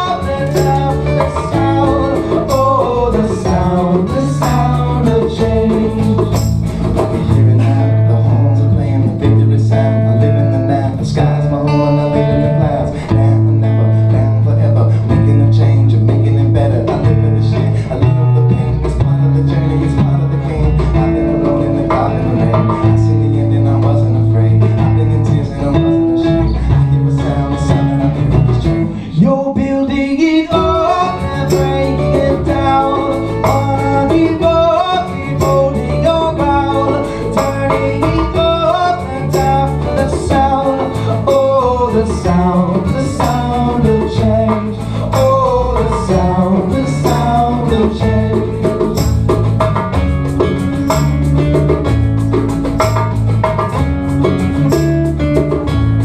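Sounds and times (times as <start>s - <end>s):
percussion ticking beat: 0.0s - 56.0s
strummed acoustic guitars: 0.0s - 56.0s.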